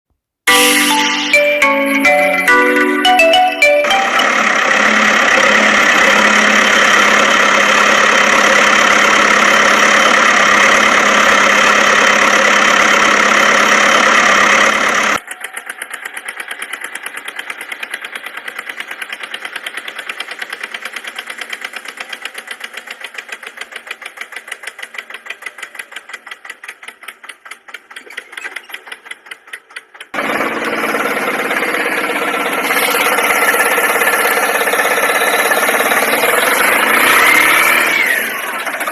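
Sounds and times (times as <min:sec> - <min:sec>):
engine running: 0:00.5 - 0:38.9
rapid chugging pulse: 0:30.1 - 0:38.9.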